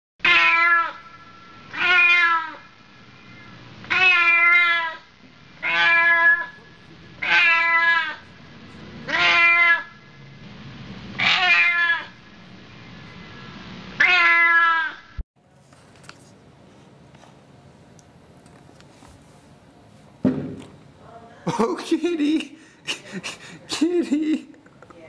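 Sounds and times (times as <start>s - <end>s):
cat meowing: 0.2s - 1.1s, 1.7s - 2.6s, 3.9s - 5.0s, 5.6s - 6.6s, 7.2s - 8.2s, 9.1s - 10.0s, 11.2s - 12.2s, 14.0s - 15.0s.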